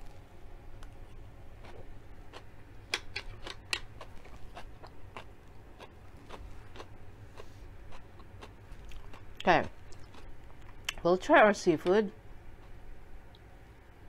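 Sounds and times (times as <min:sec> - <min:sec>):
crunchy chewing: 0:00.9 - 0:11.0.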